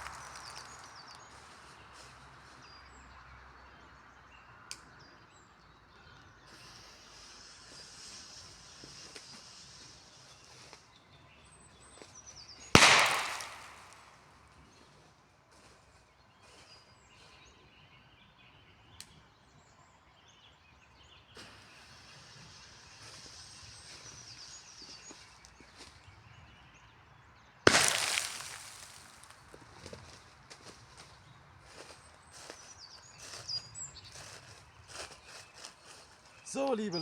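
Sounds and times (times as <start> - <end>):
birds singing faintly: 0.0 - 37.0
firecracker bangs: 12.8 - 14.2, 27.7 - 29.2.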